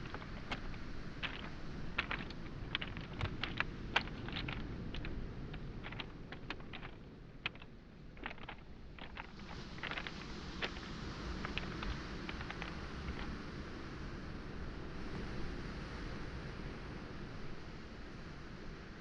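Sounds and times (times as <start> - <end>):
waves washing on shore: 0.0 - 13.3
footsteps crunching on pebbles: 0.0 - 13.4
stones clacking: 0.0 - 13.4.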